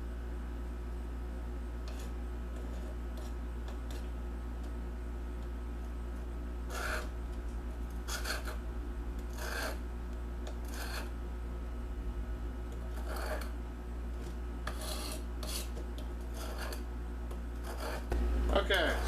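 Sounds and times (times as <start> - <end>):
blade scraping on sharpening stone: 6.7 - 7.1, 8.1 - 8.6, 9.3 - 9.8, 10.6 - 11.1, 12.9 - 13.5, 14.6 - 16.8, 17.6 - 18.1.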